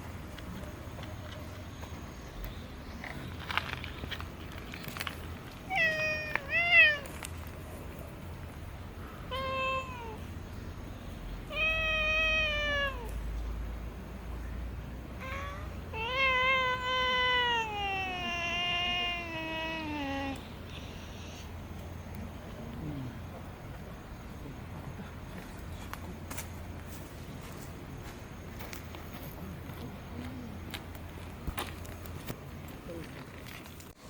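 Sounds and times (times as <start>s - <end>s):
cat meowing: 5.7s - 7.1s, 9.3s - 10.2s, 11.5s - 13.1s, 15.2s - 20.4s.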